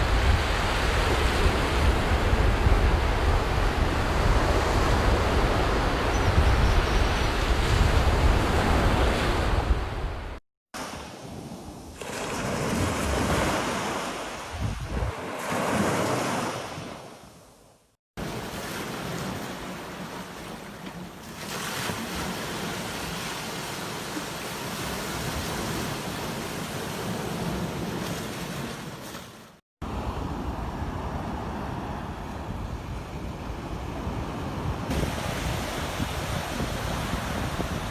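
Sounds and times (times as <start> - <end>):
ocean surf breaking: 7.5 - 17.1, 33.4 - 37.9.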